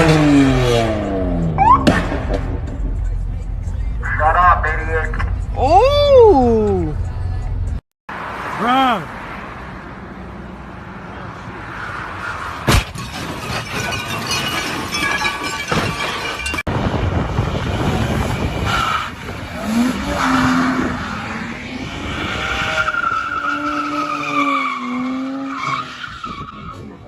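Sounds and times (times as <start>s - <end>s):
car tyres squealing and skidding: 11.3s - 16.6s, 17.3s - 27.0s.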